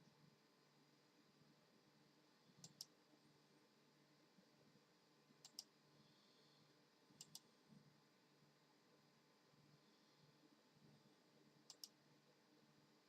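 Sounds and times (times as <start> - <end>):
quiet low hum: 0.0 - 13.0
faint double clicks: 2.6 - 2.9, 5.4 - 5.7, 7.2 - 7.5, 11.7 - 12.0.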